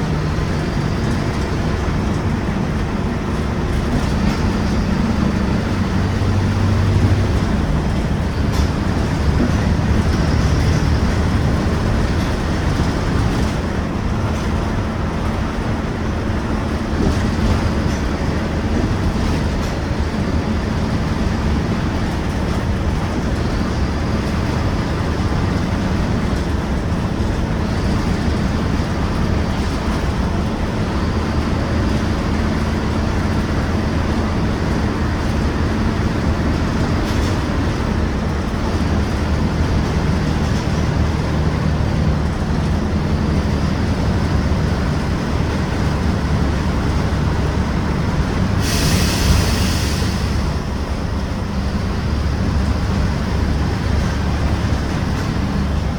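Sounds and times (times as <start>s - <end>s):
bus diesel engine rumbling: 0.0s - 55.9s
compressed air hiss: 48.6s - 50.7s.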